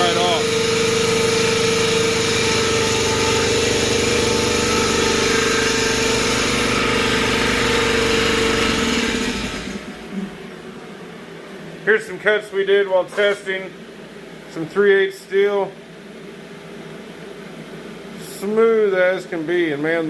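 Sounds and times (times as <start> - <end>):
machine whine: 0.0 - 14.8.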